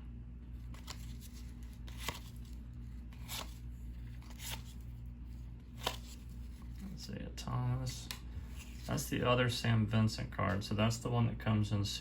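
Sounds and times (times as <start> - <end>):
steady low hum: 0.0 - 12.0
cards swishing off stack: 0.7 - 2.4.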